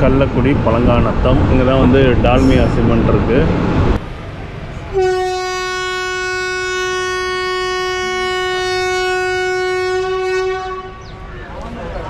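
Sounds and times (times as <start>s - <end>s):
train rumbling: 0.0s - 12.0s
train horn blast: 4.9s - 11.2s.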